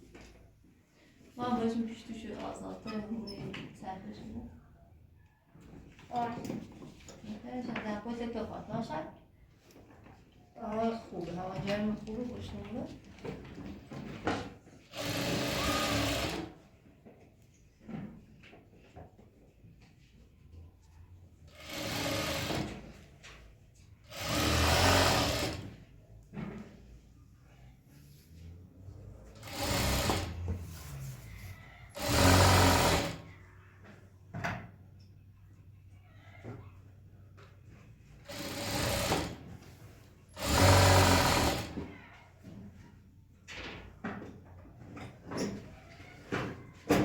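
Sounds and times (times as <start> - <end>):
sewing machine stitching: 14.2 - 16.6, 21.4 - 23.1, 24.0 - 25.9, 29.2 - 33.4, 38.2 - 41.9.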